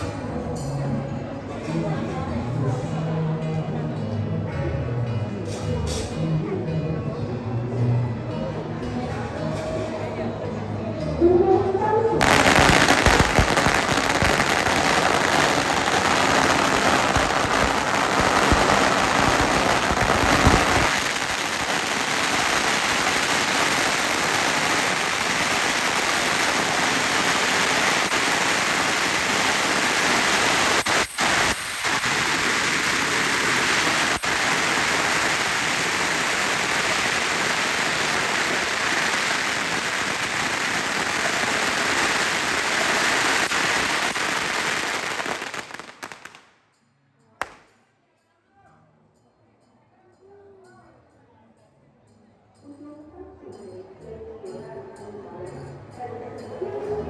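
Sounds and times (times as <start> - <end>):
fireworks crackling: 12.2 - 46.6, 47.4 - 47.8.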